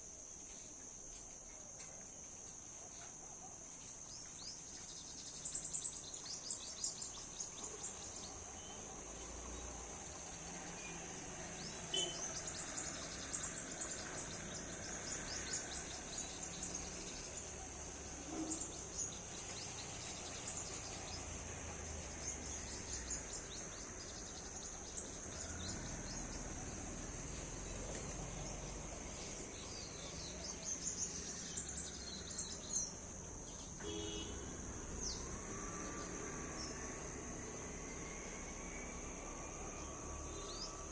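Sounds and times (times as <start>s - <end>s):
insect chorus drone: 0.0s - 40.9s.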